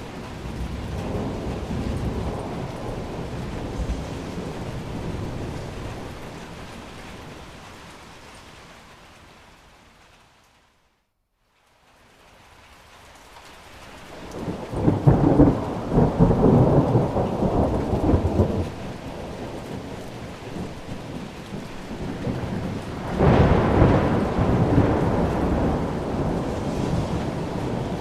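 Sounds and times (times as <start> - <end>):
thunder rolling: 0.0 - 7.7, 14.1 - 28.0
steady rain: 0.0 - 28.0.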